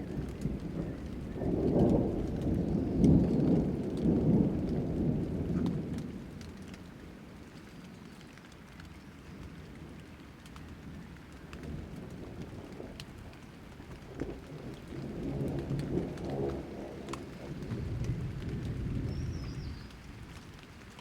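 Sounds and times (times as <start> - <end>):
rolling thunder: 0.0 - 6.4, 11.6 - 20.6
rain falling: 0.0 - 21.0.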